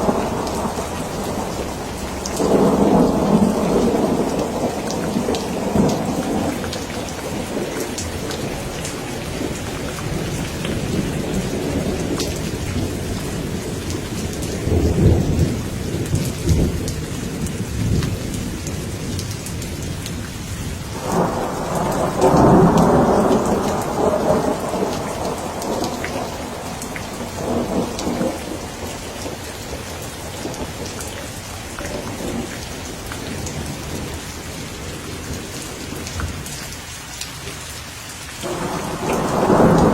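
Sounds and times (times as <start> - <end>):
rolling thunder: 0.0 - 20.0, 20.8 - 31.0, 38.4 - 39.9
steady rain falling: 0.0 - 39.9.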